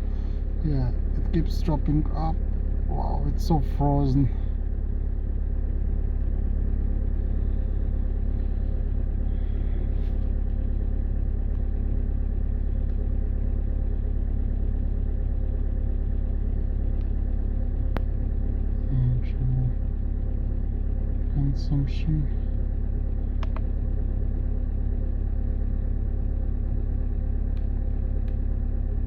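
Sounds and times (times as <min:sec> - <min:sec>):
diesel engine idling: 0:00.0 - 0:29.0
sharp click: 0:23.4 - 0:23.7.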